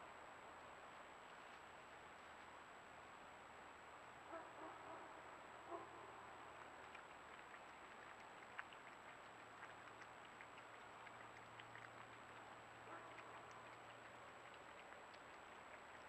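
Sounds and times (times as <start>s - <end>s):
faint ticks: 6.6s - 16.0s.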